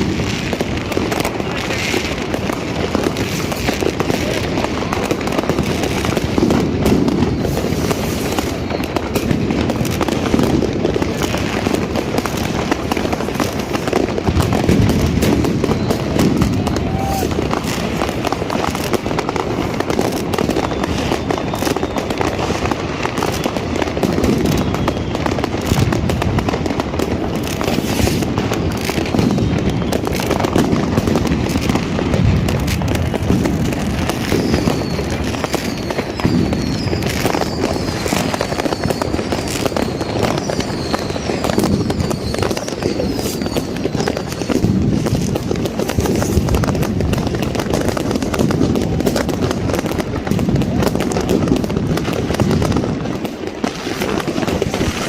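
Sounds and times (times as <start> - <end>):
fireworks crackling and banging: 0.0 - 55.0
short high whistles: 34.3 - 44.5.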